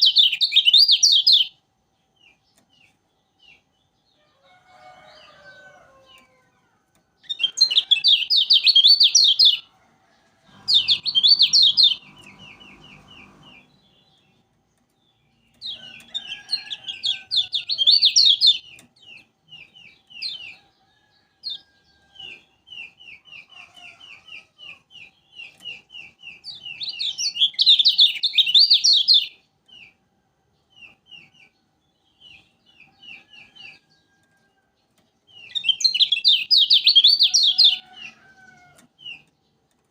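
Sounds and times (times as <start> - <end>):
bird singing high trills: 7.2 - 9.7, 10.5 - 14.2, 25.4 - 29.4, 35.4 - 37.9
low rumbling noise: 10.5 - 14.3.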